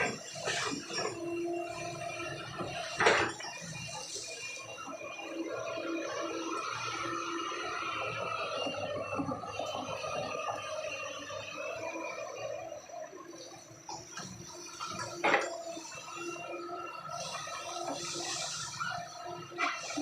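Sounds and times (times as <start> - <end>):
excavator running: 0.0 - 20.0.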